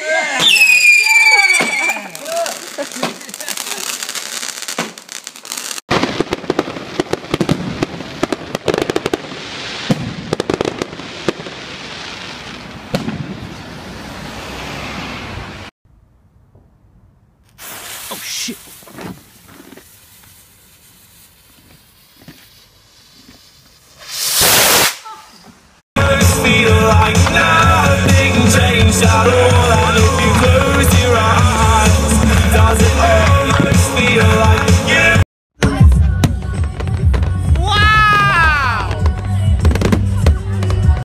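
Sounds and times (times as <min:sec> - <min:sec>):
fireworks crackling and banging: 0:00.2 - 0:15.7, 0:17.4 - 0:41.0.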